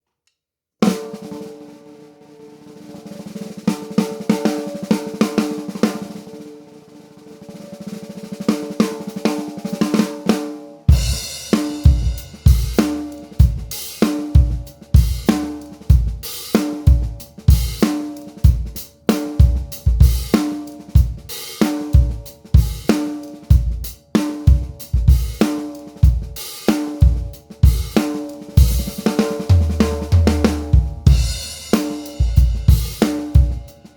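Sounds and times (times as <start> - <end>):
cymbals: 0.8 - 33.9
snare drum: 2.8 - 6.6, 7.2 - 33.9
bass drum hits: 29.6 - 31.5.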